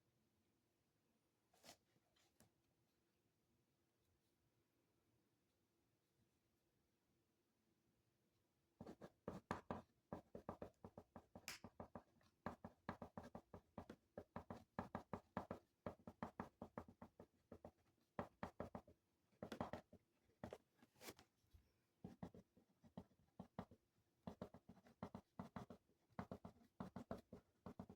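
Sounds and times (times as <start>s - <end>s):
pencil writing on paper: 8.8s - 21.2s, 22.0s - 27.9s.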